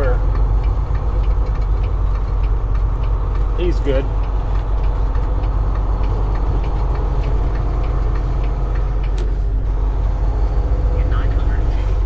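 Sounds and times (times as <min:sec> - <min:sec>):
truck diesel engine rumbling: 0:00.0 - 0:12.0
light ticks: 0:00.1 - 0:09.5.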